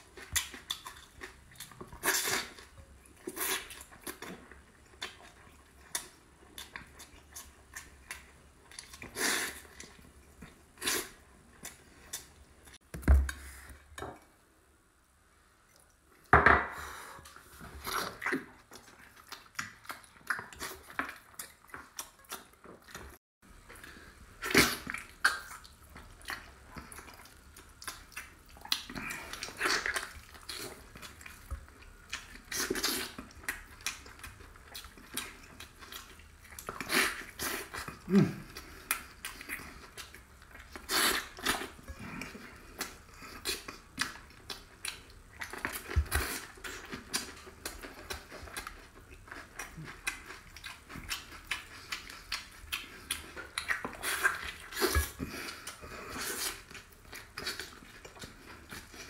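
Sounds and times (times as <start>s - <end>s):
wet chewing and lip smacks: 17.3s - 23.2s, 24.4s - 59.0s.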